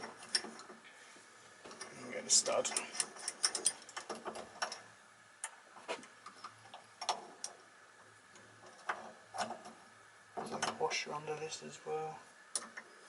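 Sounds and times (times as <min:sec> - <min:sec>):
metal parts and tools clicking: 0:02.5 - 0:04.8.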